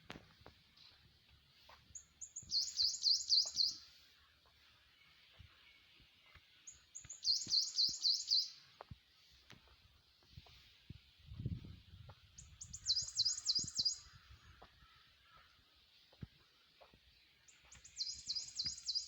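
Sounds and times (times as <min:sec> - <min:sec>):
small songbird singing: 0:01.6 - 0:09.3, 0:12.2 - 0:15.0, 0:17.1 - 0:19.0.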